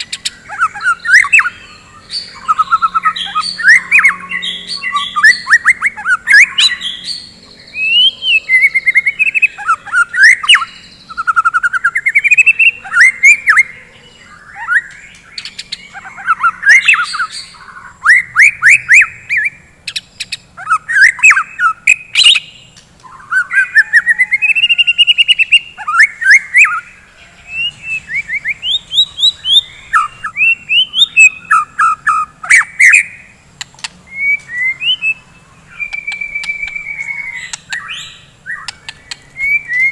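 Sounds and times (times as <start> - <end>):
bird singing whistles and trills: 0.0 - 39.9
sharp bird clicks: 33.6 - 35.0, 35.8 - 39.9.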